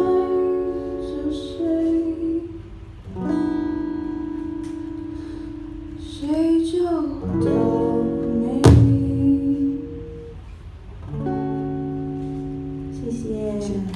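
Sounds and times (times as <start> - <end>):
person singing: 6.2 - 10.3
acoustic guitar chords strummed: 7.3 - 10.5
sharp loud strike: 8.6 - 9.6.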